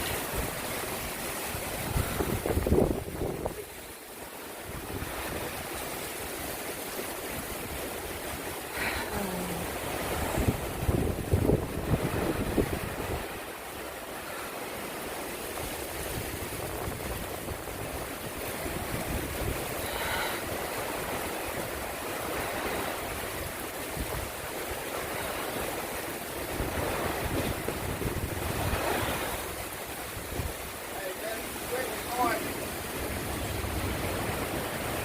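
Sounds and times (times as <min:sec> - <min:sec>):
wind buffeting microphone: 0:00.0 - 0:04.0, 0:09.8 - 0:14.4, 0:15.5 - 0:35.0
wind and rain rushing: 0:00.0 - 0:35.0.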